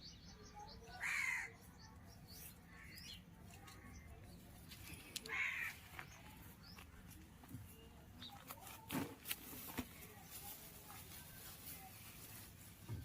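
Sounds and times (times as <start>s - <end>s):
faint background noise: 0.0s - 13.0s
rough bird calls: 5.0s - 6.8s.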